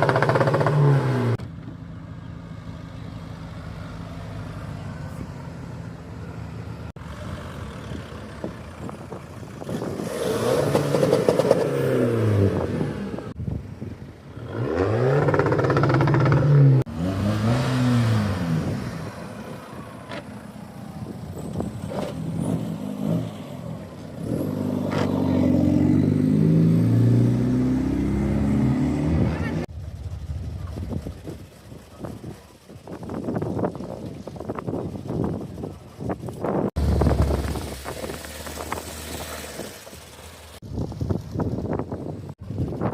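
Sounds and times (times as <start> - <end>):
car engine revving: 0.0 - 1.4, 14.3 - 19.5, 21.9 - 32.6
car engine idling: 29.7 - 42.8.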